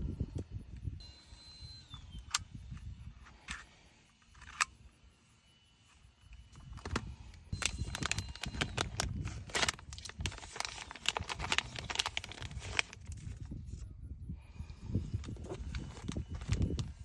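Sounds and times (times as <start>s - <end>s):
plastic packaging crinkling: 6.6s - 13.6s, 15.1s - 17.0s.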